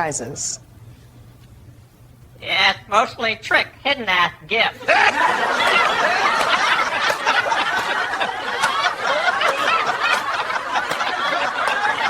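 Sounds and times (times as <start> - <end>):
people chuckling and snickering: 4.8 - 12.0.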